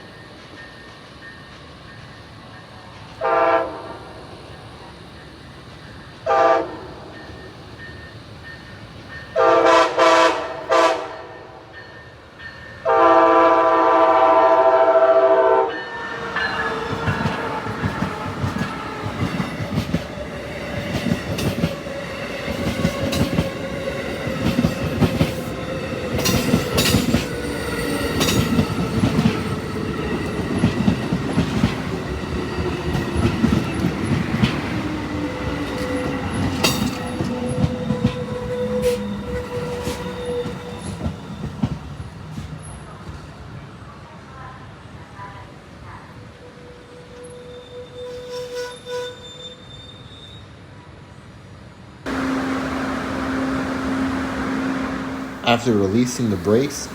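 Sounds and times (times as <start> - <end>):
falling tone under train noise: 0.0 - 9.8, 10.6 - 42.9, 46.2 - 56.9
train horn blasts: 3.2 - 4.1, 6.3 - 6.8, 9.4 - 11.5, 12.8 - 18.1, 47.0 - 49.2, 52.1 - 56.9
train wheels clicking over rails: 16.2 - 43.2.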